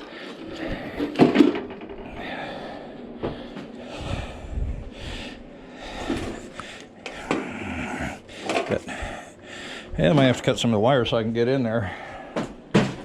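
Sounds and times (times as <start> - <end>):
short low rumbles: 1.7 - 6.7.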